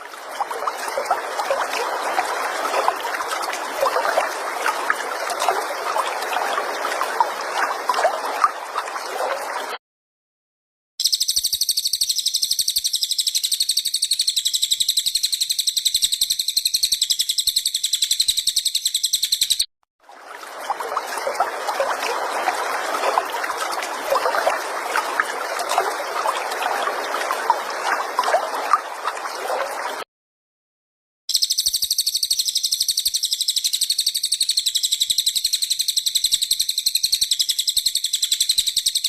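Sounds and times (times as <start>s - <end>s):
rapid high-pitched bird trill: 11.0s - 19.7s, 31.3s - 39.0s.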